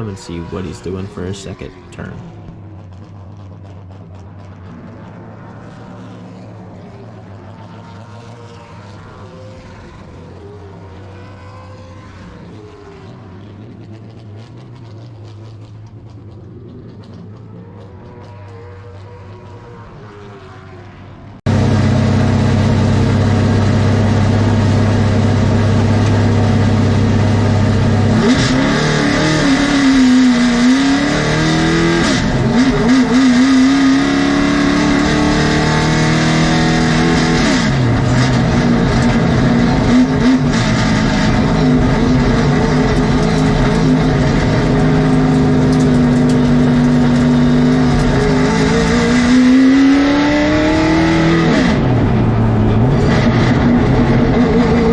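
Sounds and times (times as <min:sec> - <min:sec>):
race car engine revving: 0:00.0 - 0:54.9.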